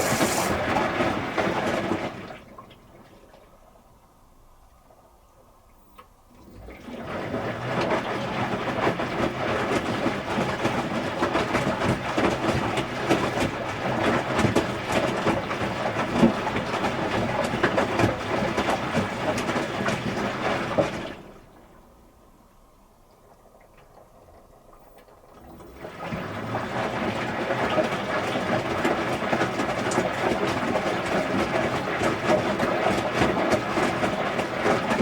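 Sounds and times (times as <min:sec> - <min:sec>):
washing machine drum tumbling: 0:00.0 - 0:02.2
water sloshing and clattering: 0:00.0 - 0:03.7, 0:06.3 - 0:21.7, 0:23.1 - 0:35.0.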